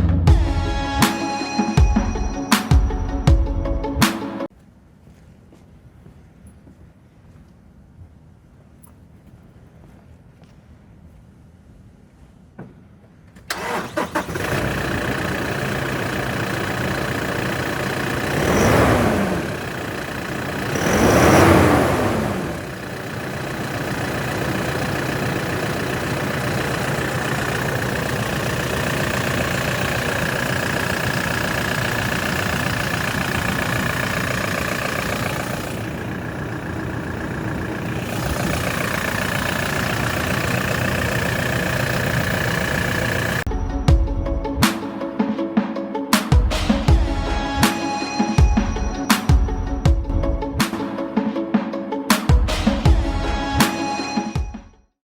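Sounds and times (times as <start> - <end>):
car engine starting and idling: 13.4 - 44.8
engine revving: 13.5 - 43.5.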